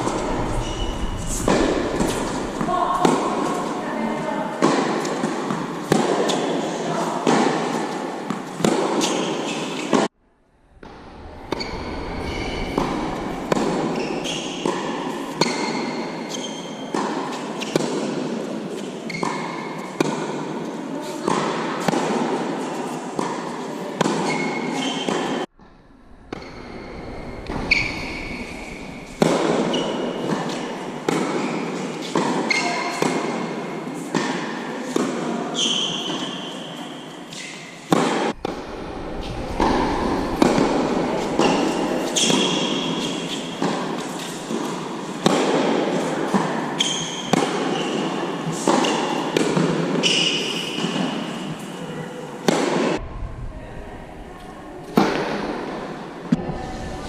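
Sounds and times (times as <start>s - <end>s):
shoe squeaks: 13.9s - 15.6s, 16.3s - 16.8s, 26.4s - 30.6s, 32.5s - 32.9s, 46.8s - 47.9s
tennis racket strikes: 27.8s - 33.4s, 39.6s - 51.3s
ball bouncing on court: 39.6s - 43.8s.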